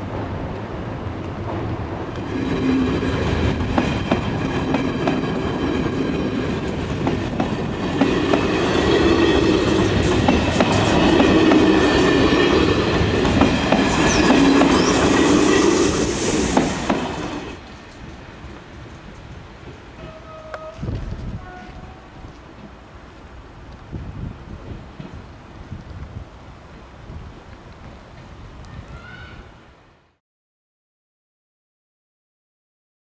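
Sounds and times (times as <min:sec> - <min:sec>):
train rolling rumble: 0:00.0 - 0:28.8
wheels clicking over rail joints: 0:01.2 - 0:15.6.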